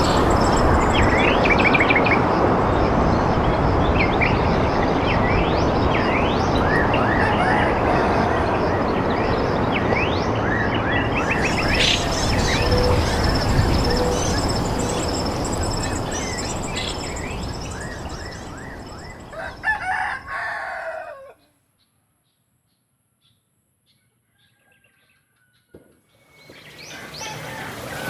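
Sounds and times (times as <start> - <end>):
small birds chirping: 0.0 - 7.3, 9.1 - 20.6
loud steady noise: 0.0 - 20.4
rooster crowing: 6.6 - 9.2, 11.2 - 21.4, 26.9 - 28.0.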